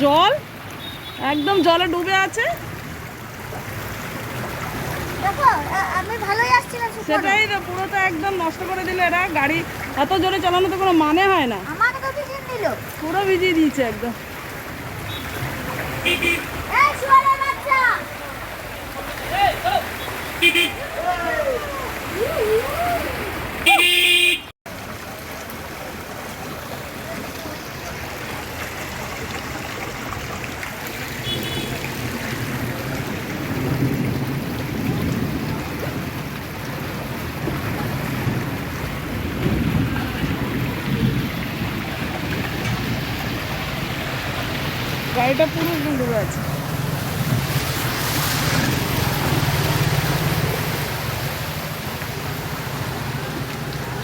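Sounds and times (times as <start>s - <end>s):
rushing water: 0.0s - 54.0s
vehicle engines running: 25.6s - 54.0s.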